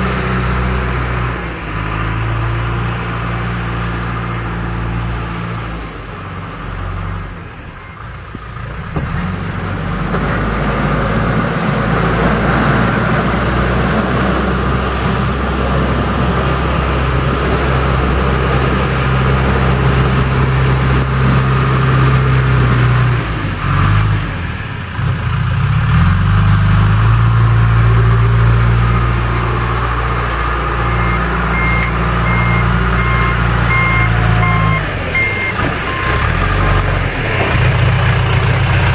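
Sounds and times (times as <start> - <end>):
diesel engine working under load: 0.0 - 38.9
reversing alarm beeping: 30.8 - 36.4.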